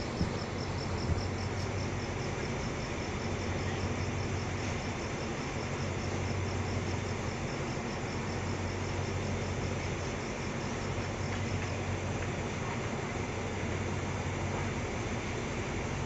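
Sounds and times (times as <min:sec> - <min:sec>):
insect chirping: 0:00.0 - 0:11.9
diesel train idling: 0:00.0 - 0:16.0.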